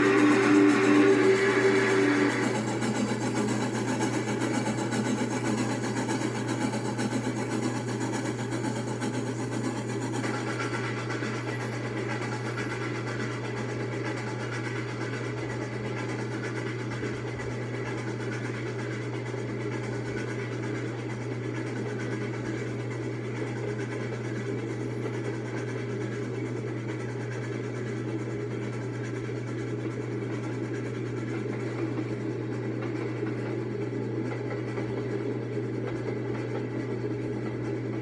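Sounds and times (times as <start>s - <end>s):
train rolling rumble: 0.0s - 20.8s.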